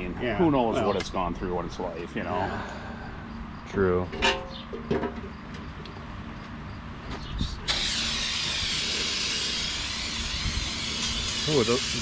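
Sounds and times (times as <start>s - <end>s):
aerosol can spraying hiss: 7.8s - 11.9s.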